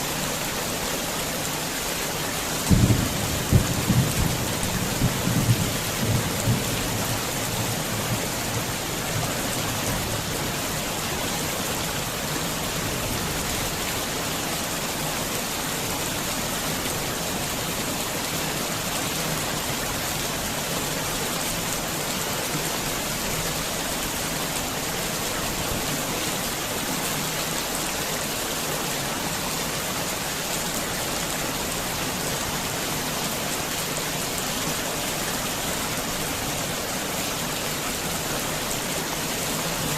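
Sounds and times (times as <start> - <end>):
heavy rain falling: 0.0 - 39.9
low rumble of thunder: 2.6 - 8.6.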